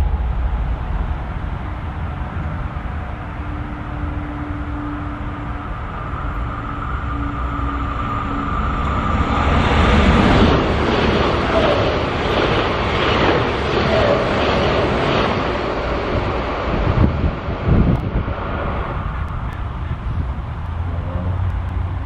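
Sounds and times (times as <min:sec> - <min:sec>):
electric train whine: 0:00.0 - 0:22.0
train wheels rumbling on rails: 0:00.0 - 0:22.0
train wheel clacks: 0:09.5 - 0:16.2.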